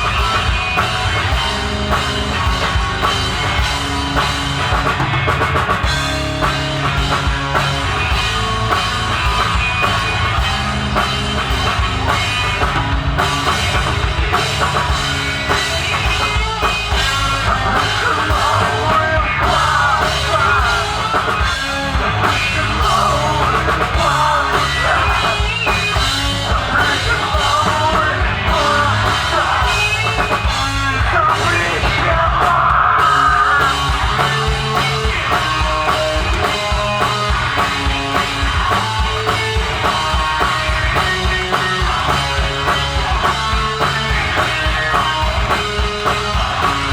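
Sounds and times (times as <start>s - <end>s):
rock band playing live: 0.0s - 46.9s.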